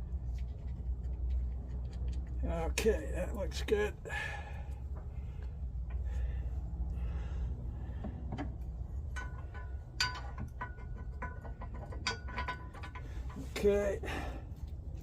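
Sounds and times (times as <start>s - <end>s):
steady low hum: 0.0s - 15.0s
metal tools clinking and tapping: 8.4s - 13.8s.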